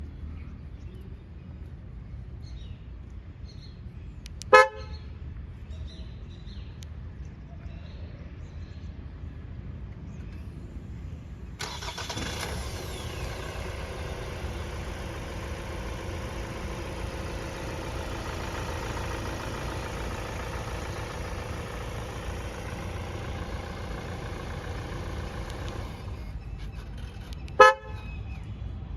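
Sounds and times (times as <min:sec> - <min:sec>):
car horn toot: 0:04.5 - 0:04.9, 0:27.6 - 0:28.1
car engine starting and idling: 0:10.3 - 0:28.4.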